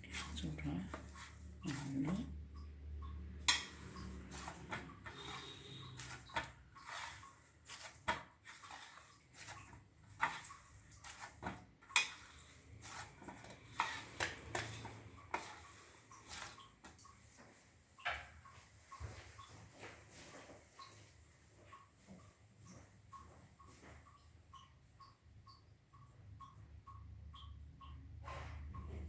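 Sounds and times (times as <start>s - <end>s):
hands kneading dough: 0.0s - 17.6s.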